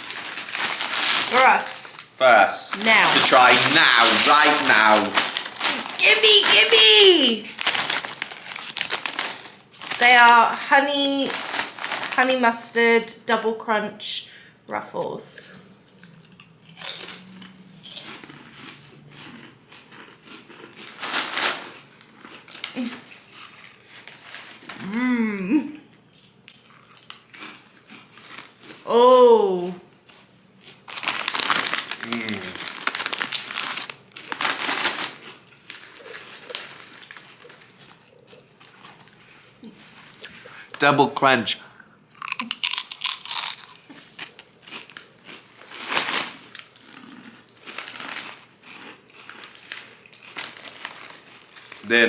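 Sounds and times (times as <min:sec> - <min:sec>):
foil crisp bag crinkling: 0:00.0 - 0:12.5, 0:19.7 - 0:24.8, 0:28.0 - 0:28.8, 0:30.8 - 0:40.7, 0:42.3 - 0:52.0
chips being crunched: 0:02.8 - 0:10.2, 0:16.7 - 0:24.4, 0:30.9 - 0:37.9, 0:42.2 - 0:52.0.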